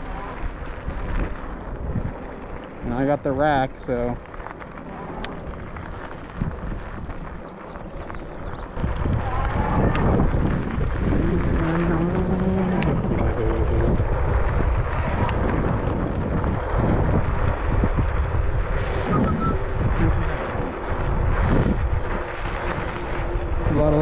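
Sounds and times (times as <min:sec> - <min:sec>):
wind buffeting microphone: 0:00.0 - 0:24.0
short low hum: 0:19.0 - 0:20.8.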